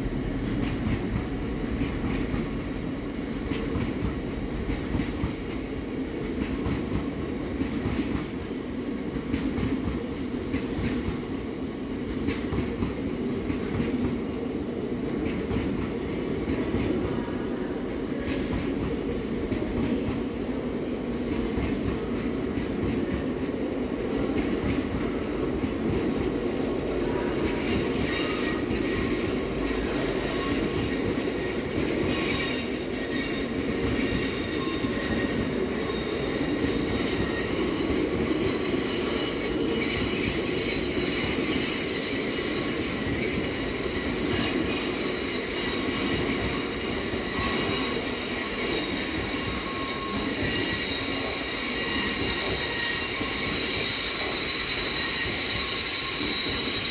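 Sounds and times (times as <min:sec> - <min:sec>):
freight train wheels rumbling: 0:00.0 - 0:56.9
high-pitched wheel squeal: 0:28.0 - 0:38.0, 0:38.7 - 0:56.9.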